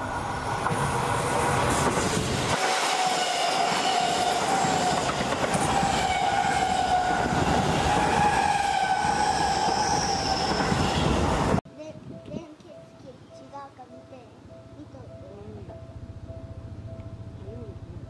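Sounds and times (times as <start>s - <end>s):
train wheels rumbling on rail: 0.0s - 11.6s
high train whine: 0.0s - 12.9s, 14.3s - 18.0s.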